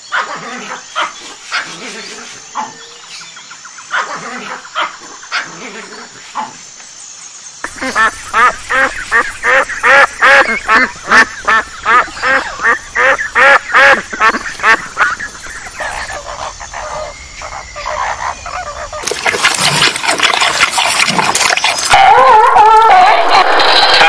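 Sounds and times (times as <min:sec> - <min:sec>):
flamingos honking chatter: 0:07.6 - 0:19.1
ducks quacking: 0:07.6 - 0:19.3.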